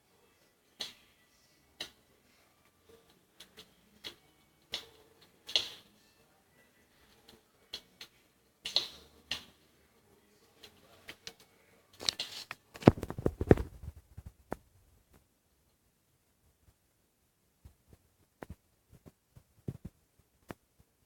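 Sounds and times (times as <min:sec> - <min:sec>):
wood fire crackling: 0:00.7 - 0:06.0, 0:06.8 - 0:15.2.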